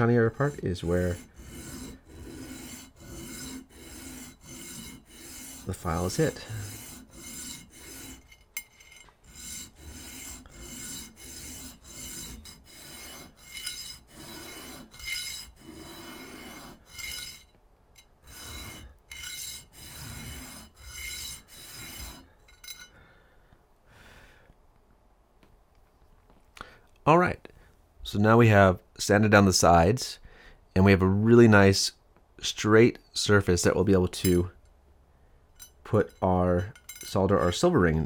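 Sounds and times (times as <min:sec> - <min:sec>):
hand sanding brass rasping: 0:00.0 - 0:17.5, 0:18.2 - 0:22.8.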